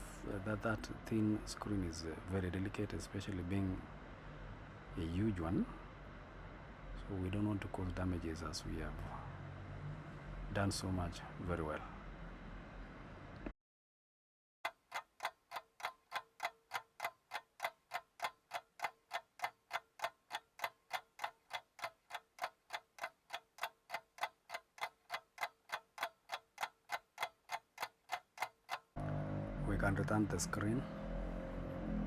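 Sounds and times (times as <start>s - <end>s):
steady ticking: 14.6s - 29.0s.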